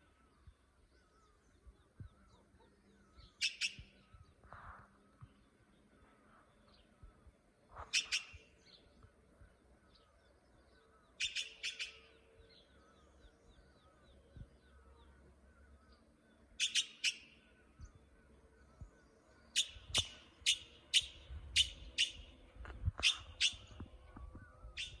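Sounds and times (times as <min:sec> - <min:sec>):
faint birds chirping: 0:00.0 - 0:25.0
bird giving sharp calls: 0:03.2 - 0:03.9, 0:07.8 - 0:08.5, 0:11.2 - 0:12.1, 0:16.6 - 0:17.4, 0:19.5 - 0:22.3.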